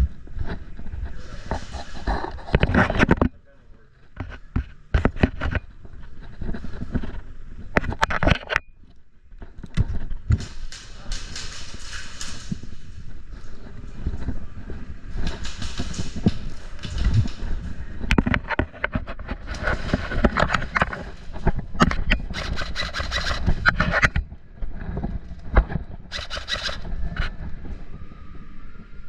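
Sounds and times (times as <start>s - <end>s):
sharp clicks: 21.8s - 24.0s, 26.1s - 26.9s.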